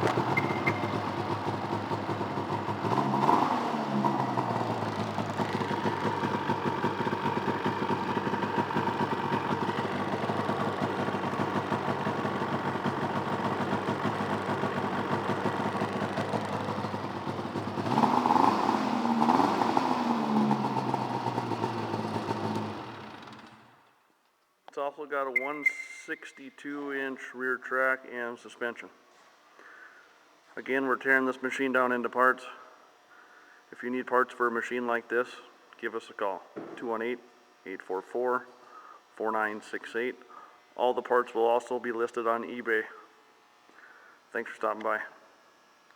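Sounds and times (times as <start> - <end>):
snowmobile engine idling and revving: 0.0 - 23.7.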